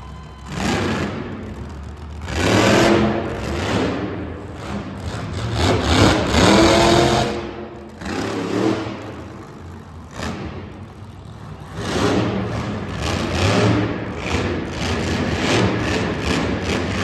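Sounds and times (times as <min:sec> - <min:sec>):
truck engine revving hard: 0:00.5 - 0:17.0.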